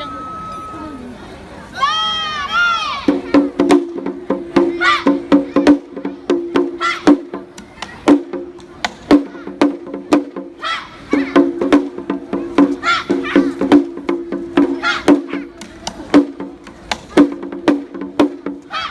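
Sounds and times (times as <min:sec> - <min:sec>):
low ringing drum tone: 0:00.0 - 0:01.3
high sliding notes: 0:00.0 - 0:01.4.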